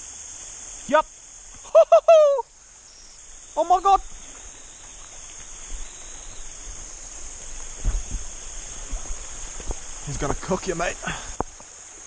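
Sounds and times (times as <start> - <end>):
cicadas buzzing: 0.0 - 12.0
low thumps: 7.5 - 9.9.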